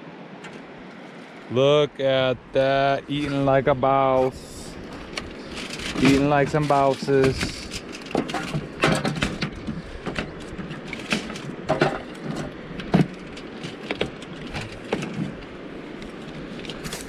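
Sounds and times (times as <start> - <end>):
steady rushing background noise: 0.0 - 17.0.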